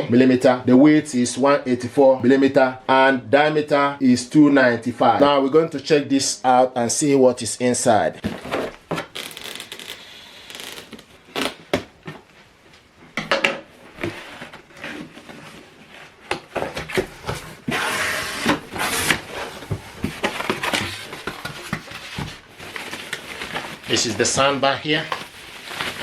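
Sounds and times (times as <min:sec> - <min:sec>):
cardboard rubbing and sliding: 0:14.0 - 0:24.3.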